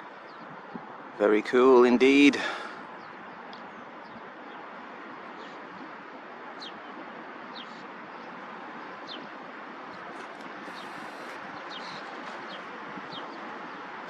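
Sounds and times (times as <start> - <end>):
bird chirping: 10.7 - 13.8.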